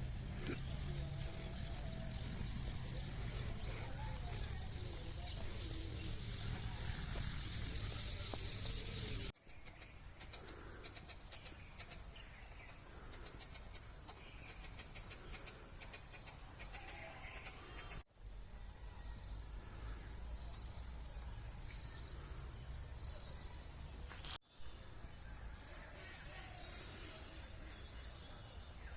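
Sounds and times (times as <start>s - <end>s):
rapid clicking bird chirps: 9.5s - 18.0s.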